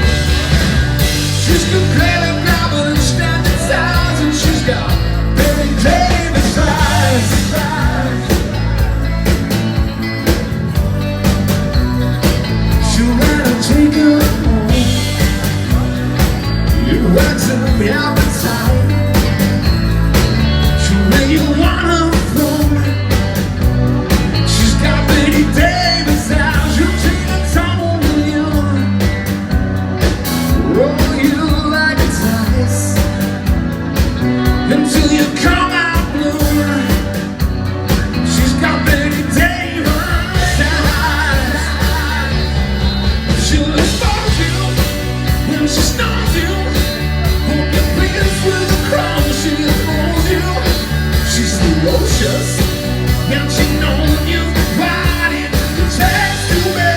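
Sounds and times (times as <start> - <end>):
lead singer singing: 0.0 - 10.8, 12.2 - 56.9
live rock band: 0.0 - 56.9.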